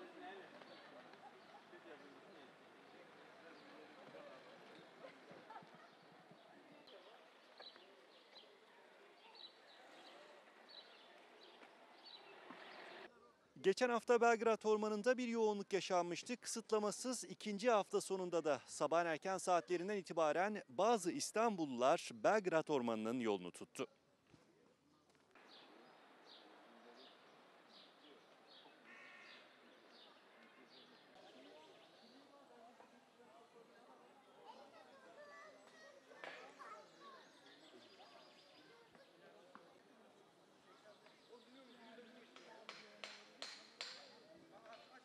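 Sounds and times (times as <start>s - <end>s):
faint outdoor ambience: 0.0s - 45.0s
bird calling: 25.4s - 30.6s.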